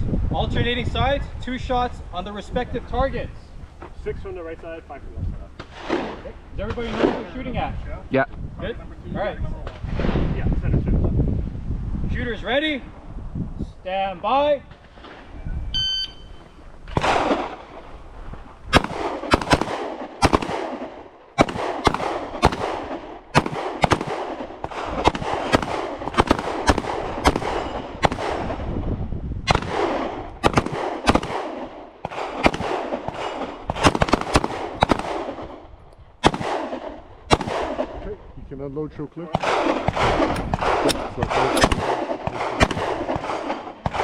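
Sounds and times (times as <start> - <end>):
shot timer beep: 15.7 - 16.4
handgun shots echoing: 18.7 - 28.6, 29.5 - 35.5, 36.2 - 37.9, 39.4 - 44.0.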